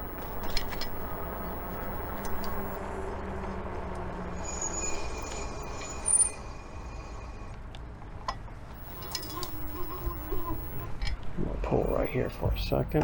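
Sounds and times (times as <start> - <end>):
brake squeal: 0.0 - 7.7, 8.8 - 11.0
low motor hum: 0.0 - 12.2.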